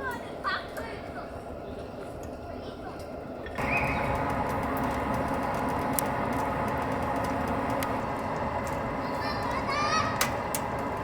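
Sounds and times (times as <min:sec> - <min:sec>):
stove fire rushing: 0:00.3 - 0:11.0
fire crackling: 0:03.6 - 0:11.0.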